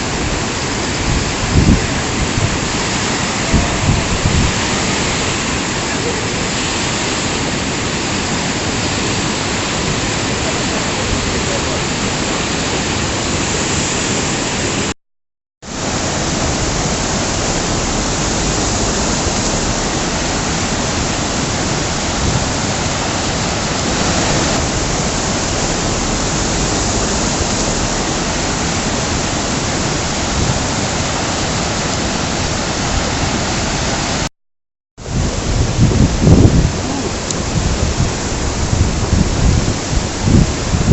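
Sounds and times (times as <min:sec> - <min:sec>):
river rushing: 0:00.0 - 0:14.9, 0:15.7 - 0:34.3, 0:35.0 - 0:40.9.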